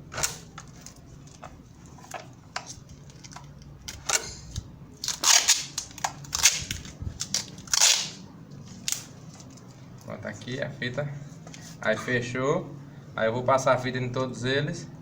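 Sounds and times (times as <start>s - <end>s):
adhesive tape ripping: 5.0s - 9.1s.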